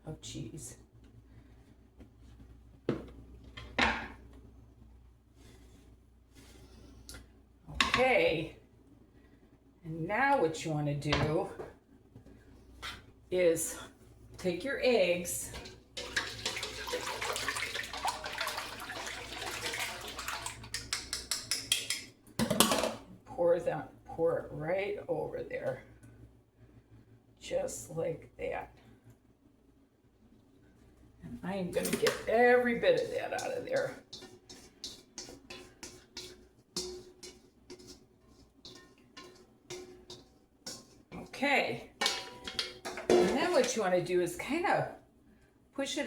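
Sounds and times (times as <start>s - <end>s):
liquid pouring: 16.0s - 20.9s
utensil scraping a mixing bowl: 31.5s - 44.1s.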